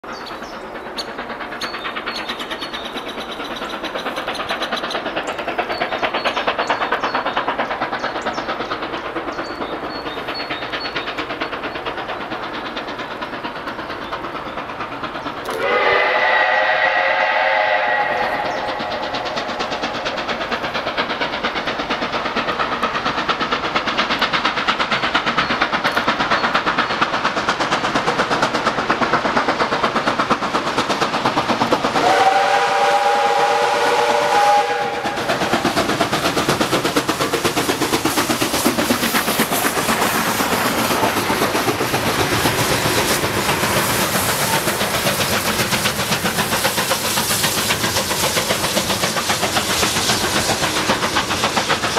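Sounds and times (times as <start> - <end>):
steam locomotive chugging: 0.0 - 51.9
steam whistle chord: 15.5 - 18.6, 32.0 - 35.2.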